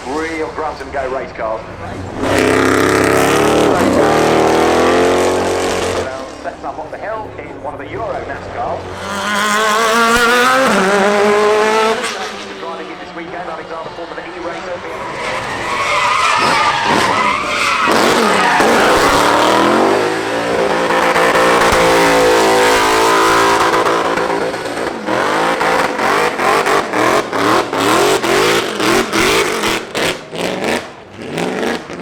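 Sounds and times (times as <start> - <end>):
race car engine revving: 0.0 - 32.0
tyre squeal: 14.8 - 20.2.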